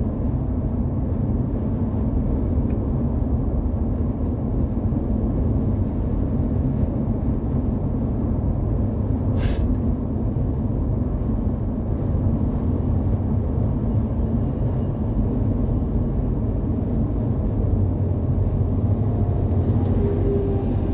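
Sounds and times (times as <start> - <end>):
truck engine and road rumble: 0.0 - 20.9
short air hiss: 9.4 - 9.8.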